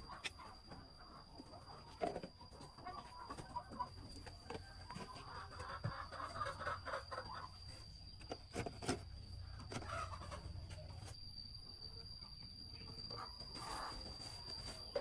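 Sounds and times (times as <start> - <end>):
chickens clucking softly: 0.0 - 11.2, 11.9 - 15.0
high-pitched whine: 6.3 - 15.0.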